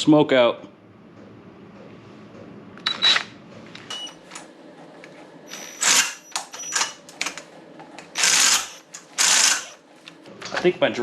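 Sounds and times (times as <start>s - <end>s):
cordless drill motor whirring: 5.5s - 7.0s, 8.2s - 9.8s.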